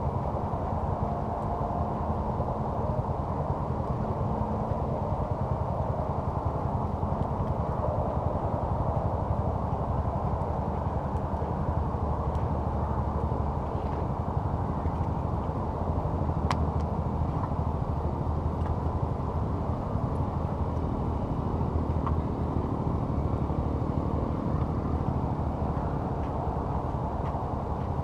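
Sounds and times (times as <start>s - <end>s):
campfire popping: 14.7s - 22.2s.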